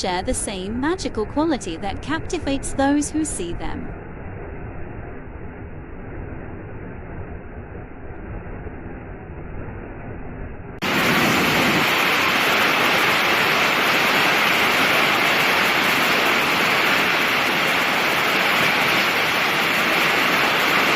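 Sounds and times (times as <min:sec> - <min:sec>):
muffled low rumble: 0:00.0 - 0:13.6
waterfall rushing: 0:10.8 - 0:20.9.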